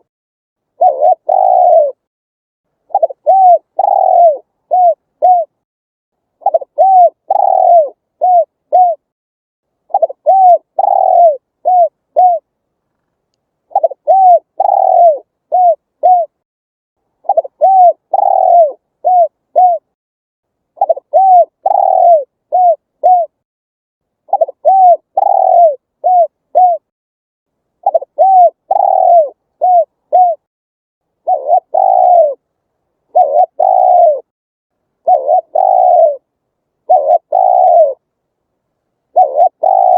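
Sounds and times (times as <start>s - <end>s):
dove cooing: 0.7s - 2.1s, 2.9s - 5.6s, 6.4s - 9.1s, 9.9s - 12.5s, 13.7s - 16.4s, 17.2s - 19.9s, 20.8s - 23.4s, 24.3s - 26.9s, 27.8s - 30.5s, 31.2s - 32.5s, 33.1s - 34.3s, 35.0s - 38.0s, 39.1s - 39.9s.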